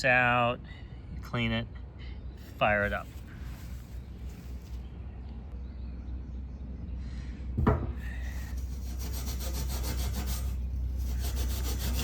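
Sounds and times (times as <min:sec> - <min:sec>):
steel wool scrubbing metal: 0:08.4 - 0:12.0.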